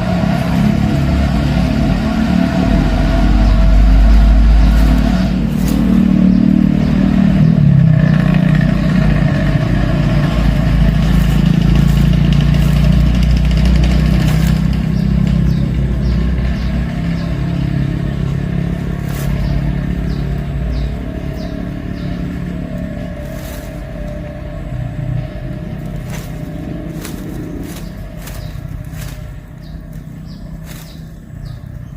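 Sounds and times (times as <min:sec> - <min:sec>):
engine running: 0:00.0 - 0:31.9.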